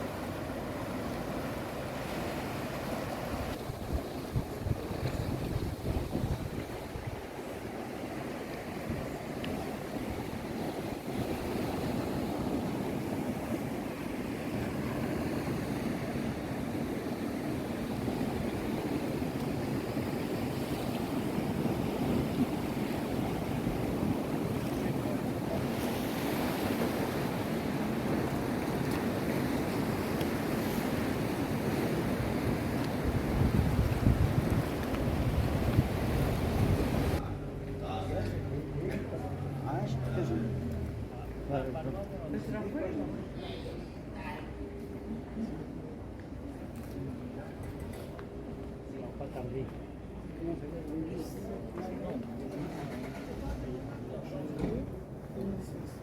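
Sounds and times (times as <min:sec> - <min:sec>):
sea waves washing on shore: 0:00.0 - 0:56.0
wind buffeting microphone: 0:03.5 - 0:07.3, 0:28.0 - 0:37.2.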